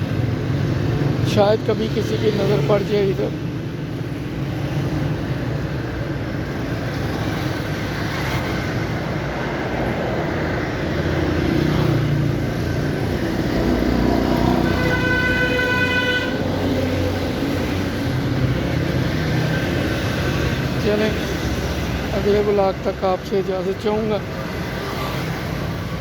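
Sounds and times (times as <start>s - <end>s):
road traffic: 0.0s - 26.0s
vehicle horn: 14.4s - 16.4s.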